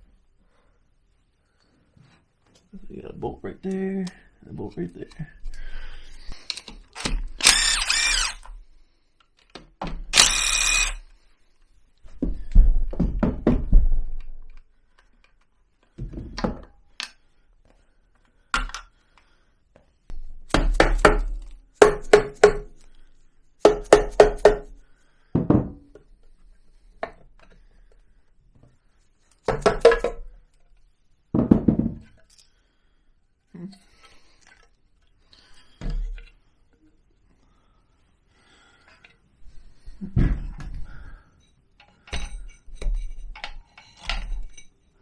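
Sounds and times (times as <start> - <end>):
short loud bursts: 7.0 - 8.4, 10.2 - 11.0
metal parts knocking and clinking: 10.2 - 11.0.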